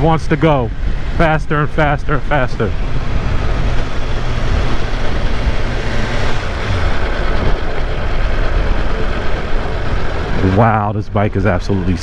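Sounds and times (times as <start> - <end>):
motorcycle engine running: 0.0 - 12.0
wind noise on microphone: 2.6 - 12.0.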